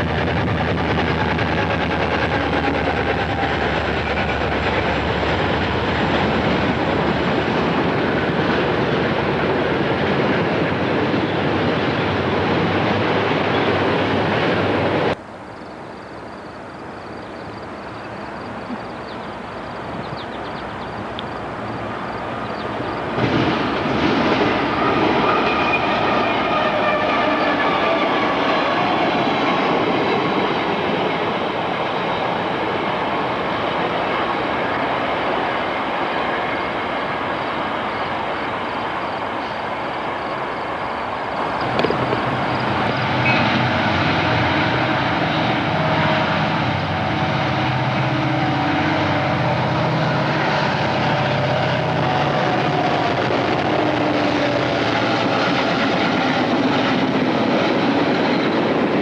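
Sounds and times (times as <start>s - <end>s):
train cars rumbling on track: 0.0s - 59.0s
knocks: 41.4s - 43.0s.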